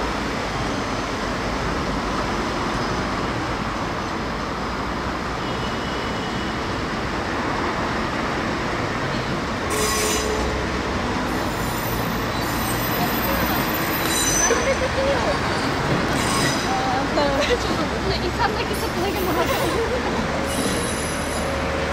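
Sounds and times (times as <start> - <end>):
wheel squeal: 11.3 - 16.8, 20.4 - 21.6.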